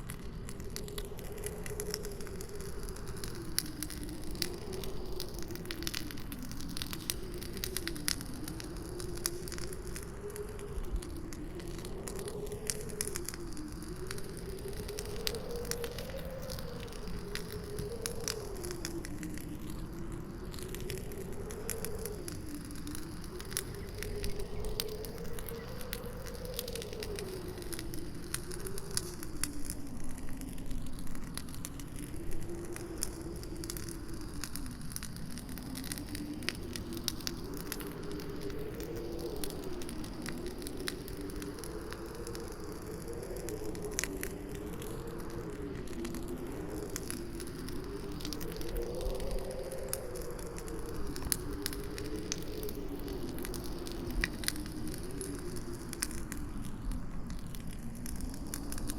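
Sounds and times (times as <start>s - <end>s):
campfire crackling and popping: 0.0s - 58.9s
howling wind: 0.0s - 58.9s.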